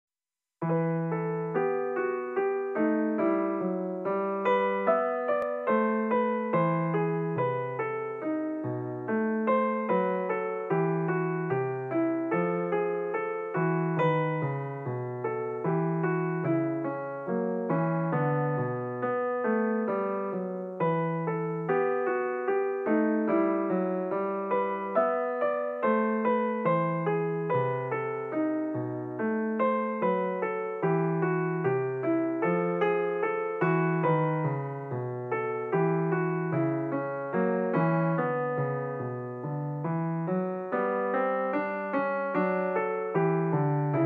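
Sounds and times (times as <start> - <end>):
piano music: 0.6 - 44.0.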